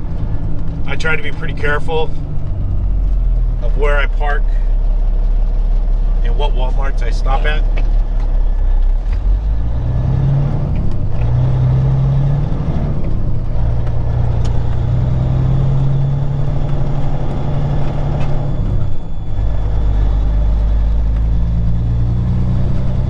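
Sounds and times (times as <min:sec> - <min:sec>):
truck diesel engine droning: 0:00.0 - 0:23.0.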